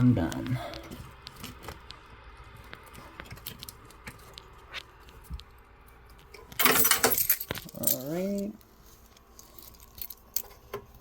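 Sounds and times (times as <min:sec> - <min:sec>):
loud jangling rattle: 0:06.6 - 0:08.1.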